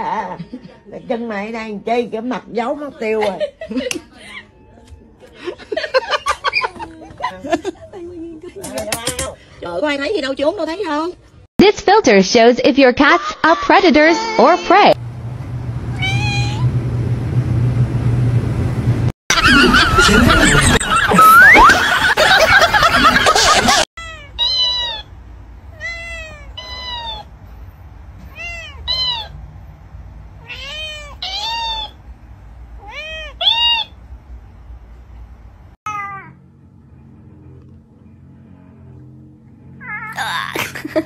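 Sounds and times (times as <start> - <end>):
cat meowing: 15.9 - 16.7, 24.0 - 25.1, 25.7 - 27.3, 28.2 - 29.4, 30.4 - 32.0, 32.8 - 34.0, 35.9 - 36.4, 39.8 - 40.2.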